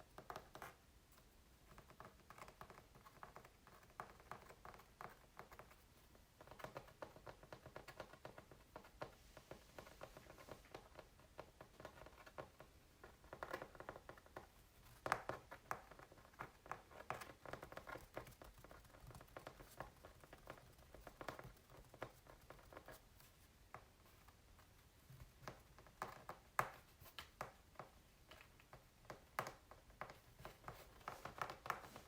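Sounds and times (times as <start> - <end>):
light tapping on canvas: 6.4 - 32.0.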